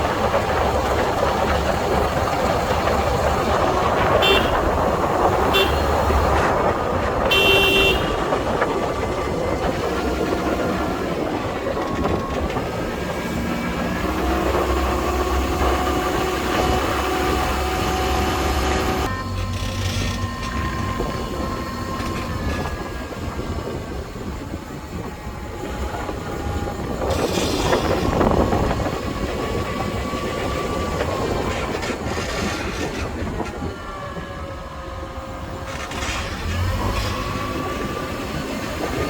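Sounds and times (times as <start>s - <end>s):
car engine and road noise: 0.0s - 39.0s
car horn toots: 3.9s - 6.4s, 7.2s - 8.7s.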